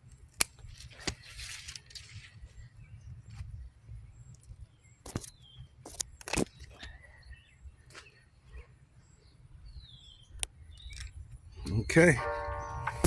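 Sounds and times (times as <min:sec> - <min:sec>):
birds chirping: 0:06.5 - 0:13.0.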